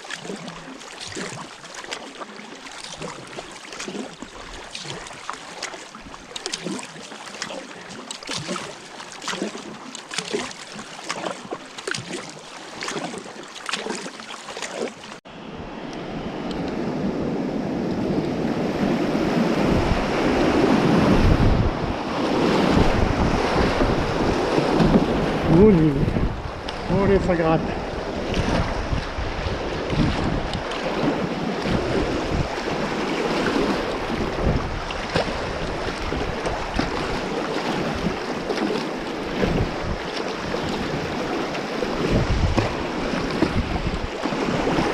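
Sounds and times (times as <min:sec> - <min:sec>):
paddle strokes splashing water: 0:00.0 - 0:15.2, 0:22.1 - 0:44.9
wind on microphone: 0:15.4 - 0:44.9.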